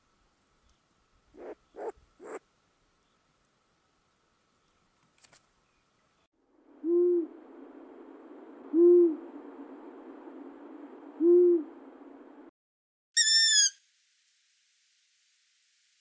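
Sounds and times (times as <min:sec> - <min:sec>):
field recording hiss: 0:00.0 - 0:12.5, 0:13.8 - 0:16.0
bird hooting: 0:01.4 - 0:02.4, 0:06.8 - 0:07.4, 0:08.7 - 0:09.3, 0:11.2 - 0:11.8.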